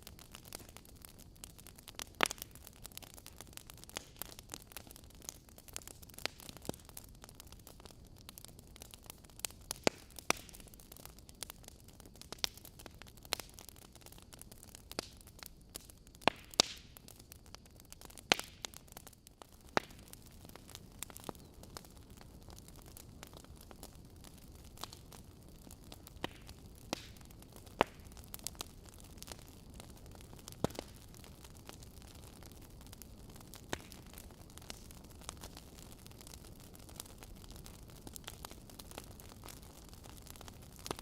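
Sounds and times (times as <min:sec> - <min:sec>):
fire hissing: 0:00.0 - 0:41.0
logs crackling and popping: 0:00.0 - 0:41.0.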